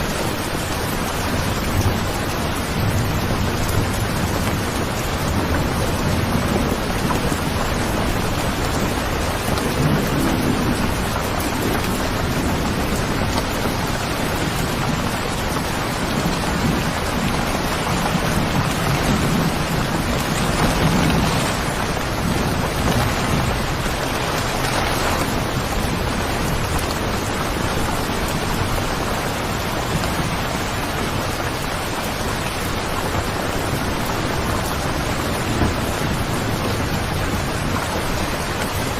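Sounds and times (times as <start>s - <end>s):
low rumbles of thunder: 0.0s - 38.9s
steady rain: 0.0s - 38.9s.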